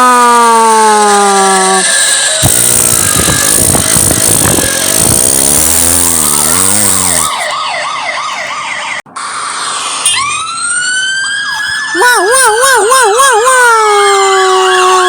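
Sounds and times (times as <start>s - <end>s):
warbling siren: 0.0s - 15.0s
motor-like drone: 1.6s - 7.6s
rising siren wail: 6.3s - 15.0s.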